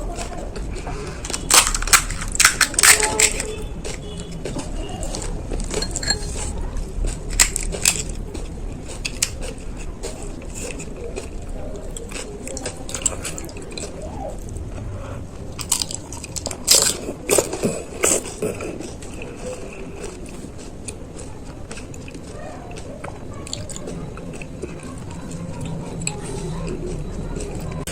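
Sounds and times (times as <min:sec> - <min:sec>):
person chewing crunchy food: 0:00.0 - 0:27.9.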